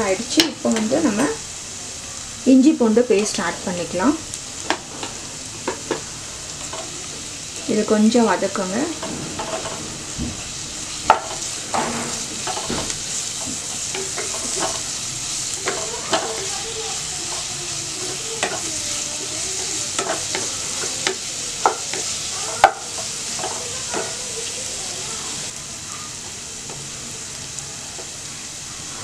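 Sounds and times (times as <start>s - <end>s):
food sizzling in hot oil: 0.0s - 29.0s
spatula knocking and scraping pan: 8.9s - 14.9s, 15.6s - 24.3s.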